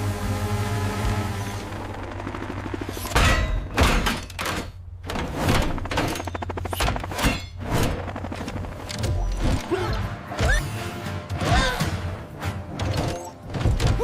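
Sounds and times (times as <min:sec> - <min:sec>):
low background music: 0:09.1 - 0:14.0.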